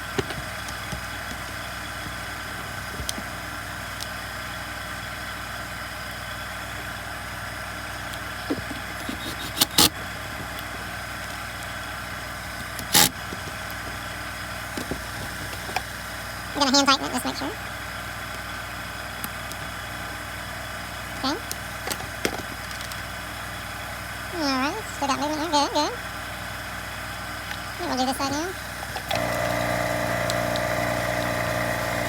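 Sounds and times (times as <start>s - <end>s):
mechanical hum: 0.0s - 32.0s
small parts clicking and clattering: 21.4s - 23.1s.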